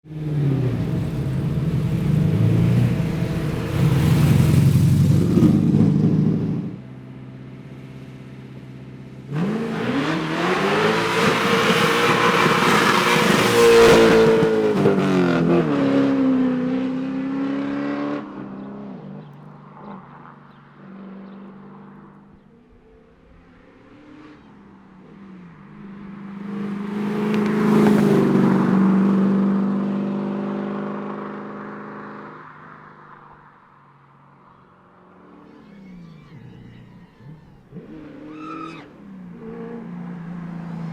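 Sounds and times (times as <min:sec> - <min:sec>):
rally car engine passing by: 0:00.1 - 0:07.2, 0:09.2 - 0:19.1, 0:23.2 - 0:33.3.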